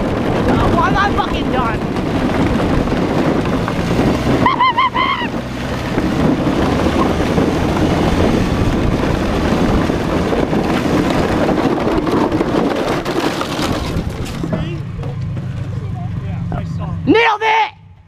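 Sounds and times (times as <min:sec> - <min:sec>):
wind buffeting microphone: 0:00.0 - 0:15.4
plastic wheels rolling over rough ground: 0:00.0 - 0:15.8
person yelling: 0:04.4 - 0:05.4, 0:17.0 - 0:18.0.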